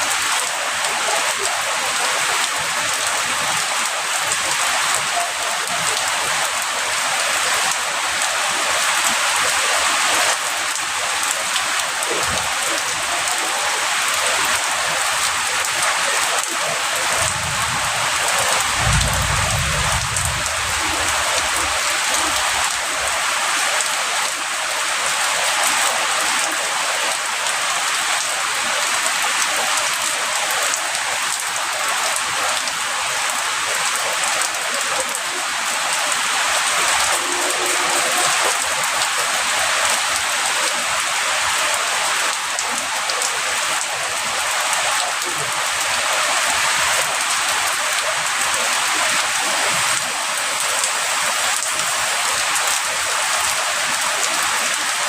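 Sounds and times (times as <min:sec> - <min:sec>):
heavy rain hissing: 0:00.0 - 0:55.0
distant thunder rumble: 0:17.1 - 0:22.6.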